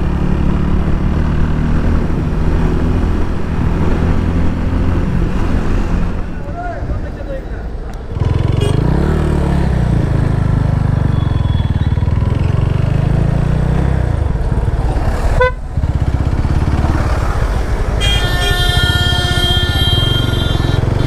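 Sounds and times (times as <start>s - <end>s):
motorcycle engine revving: 0.0s - 6.2s, 8.1s - 21.0s
vehicle horn: 8.4s - 8.9s, 15.4s - 15.6s, 18.0s - 21.0s.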